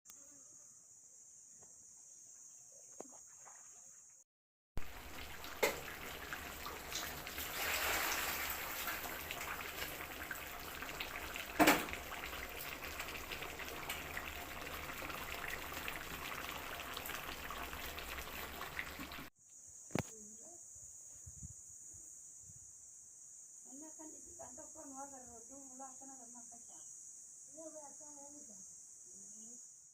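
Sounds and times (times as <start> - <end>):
faint insect chirring: 0.1 - 4.2, 19.4 - 29.9
water running from a tap: 4.8 - 19.3.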